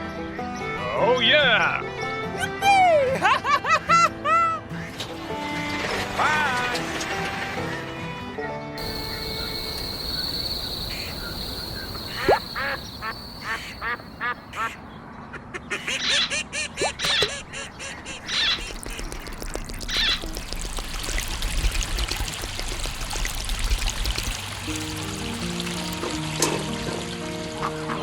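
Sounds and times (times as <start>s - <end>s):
steady high tone: 8.8s - 14.5s.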